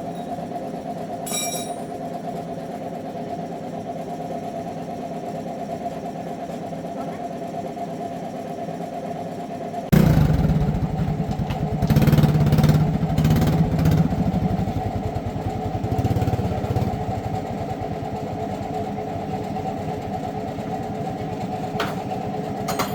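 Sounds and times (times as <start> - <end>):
motorcycle engine revving and idling: 9.9 - 22.9.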